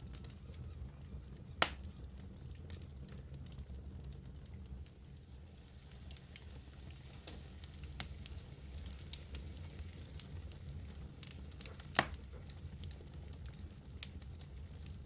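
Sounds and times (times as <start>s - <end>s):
fire crackling: 0.0s - 15.0s
wood fire roaring: 0.0s - 15.0s
loud pop from fire: 1.6s - 1.9s, 11.2s - 12.6s.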